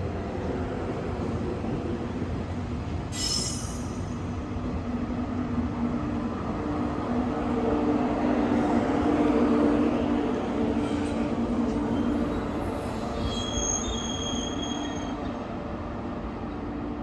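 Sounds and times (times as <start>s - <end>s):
electric train rumbling: 0.0s - 17.0s
high squeal: 12.0s - 15.3s.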